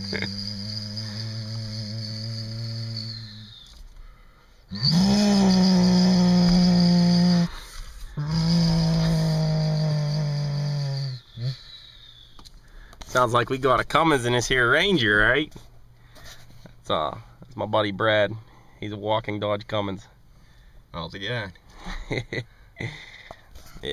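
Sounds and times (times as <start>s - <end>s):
man imitating diesel engine: 0.0s - 3.6s, 4.7s - 12.0s.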